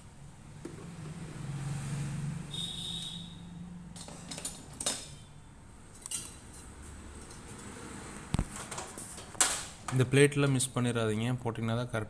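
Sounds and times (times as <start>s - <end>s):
parts clinking and knocking: 3.9s - 5.3s.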